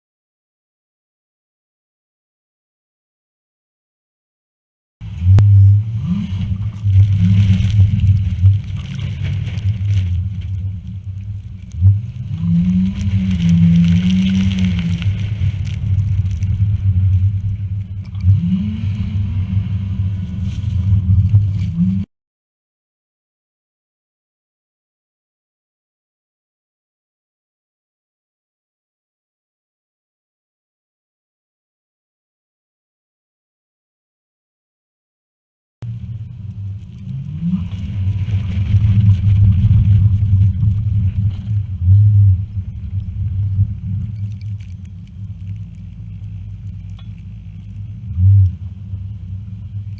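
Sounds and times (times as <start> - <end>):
road rumble: 5.0 - 22.1, 35.8 - 49.9
vehicle engine accelerating: 5.0 - 22.1, 35.8 - 49.9.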